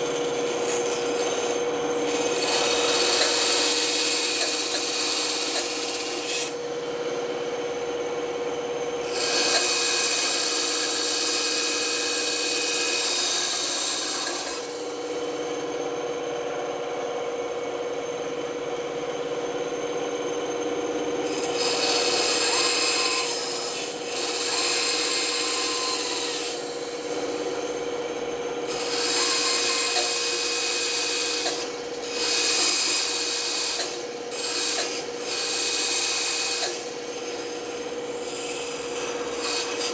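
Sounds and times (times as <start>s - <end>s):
saw blade cutting wood: 0.0s - 6.6s, 9.0s - 15.0s, 21.2s - 27.4s, 28.7s - 39.9s
band saw humming: 0.0s - 39.9s.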